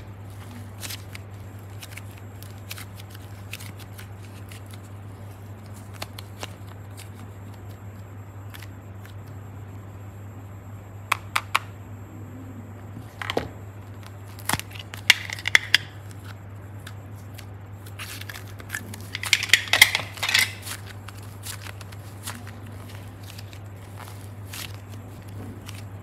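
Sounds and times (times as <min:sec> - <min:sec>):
slime squishing and rustling: 0:00.0 - 0:09.2, 0:16.1 - 0:26.0
low steady hum: 0:00.0 - 0:26.0.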